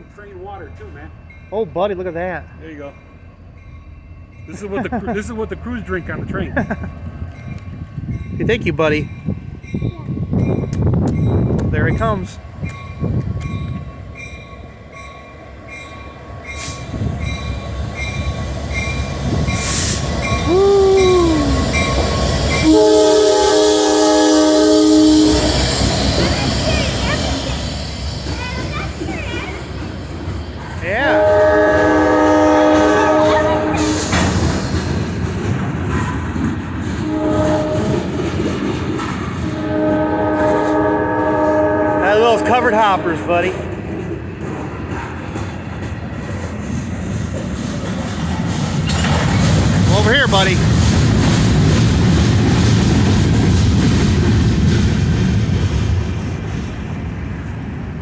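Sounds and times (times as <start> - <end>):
locomotive bell ringing: 0.0 - 29.6, 39.7 - 43.8
locomotive rumble: 0.0 - 58.0
locomotive horn blast: 22.5 - 25.9, 30.8 - 34.4, 37.0 - 38.2, 39.6 - 43.6
freight train wheels clattering: 25.2 - 58.0.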